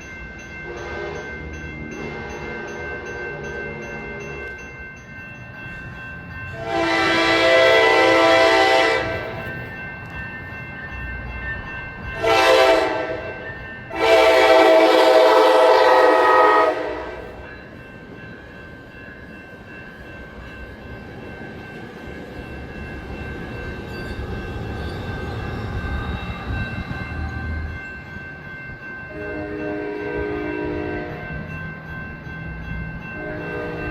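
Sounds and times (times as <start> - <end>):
train air horn blasts: 0.7 - 1.3, 6.6 - 9.4, 12.2 - 13.3, 13.9 - 17.4, 29.1 - 31.2.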